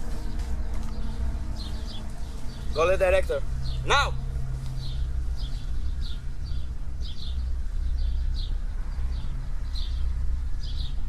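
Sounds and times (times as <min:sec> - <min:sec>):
bird chirping: 0:00.0 - 0:11.0
steady low rumble: 0:00.0 - 0:11.0.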